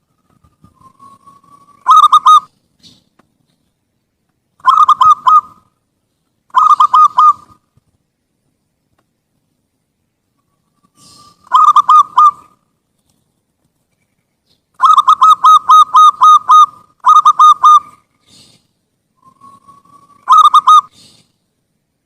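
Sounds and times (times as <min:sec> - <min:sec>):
dove cooing: 0:00.6 - 0:03.0, 0:04.6 - 0:05.7, 0:06.5 - 0:07.6, 0:10.8 - 0:12.6, 0:14.8 - 0:18.6, 0:19.2 - 0:21.3.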